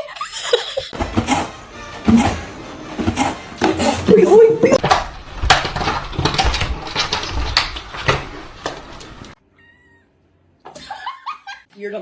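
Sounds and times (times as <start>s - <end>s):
clattering knocks and thumps: 4.8s - 9.4s
cat meowing: 9.5s - 10.1s.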